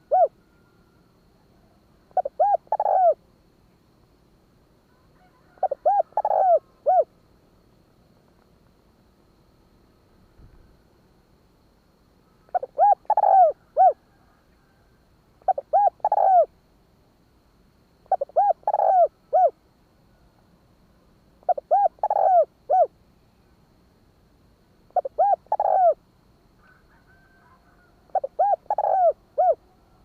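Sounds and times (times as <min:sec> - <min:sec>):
dove cooing: 0:00.0 - 0:01.0, 0:01.6 - 0:03.2, 0:04.9 - 0:07.1, 0:12.4 - 0:16.5, 0:18.0 - 0:19.6, 0:21.4 - 0:22.9, 0:24.9 - 0:26.0, 0:26.6 - 0:30.0.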